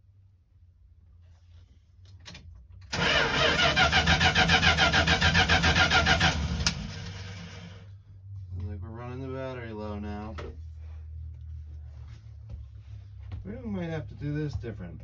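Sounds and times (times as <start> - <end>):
starter cranking engine: 2.9 - 7.7.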